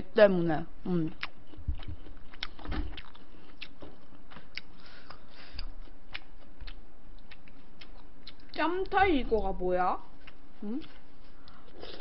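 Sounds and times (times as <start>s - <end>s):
person chewing: 1.0s - 8.6s, 10.1s - 12.0s.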